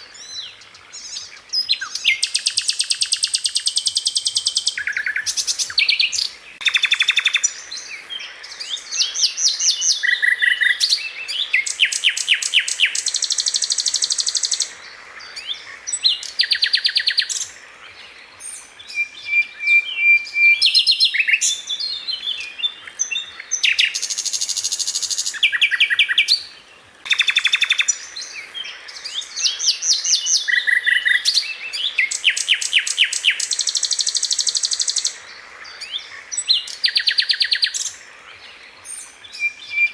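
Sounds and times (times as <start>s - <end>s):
flycatcher singing: 0.0s - 17.6s, 27.1s - 38.0s.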